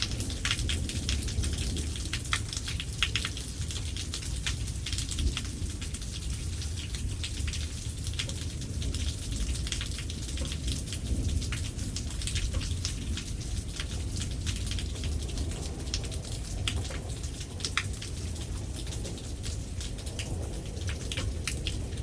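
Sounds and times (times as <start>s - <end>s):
raindrops ticking: 0.0s - 22.0s
steady low rumble: 11.1s - 22.0s.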